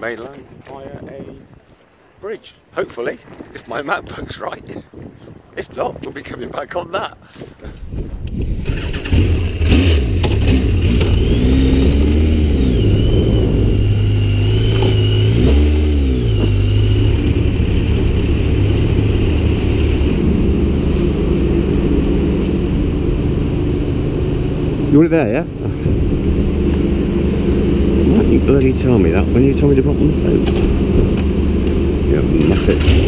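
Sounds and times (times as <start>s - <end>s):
motorcycle engine revving: 8.5s - 33.0s
high wavering whine: 11.0s - 32.5s.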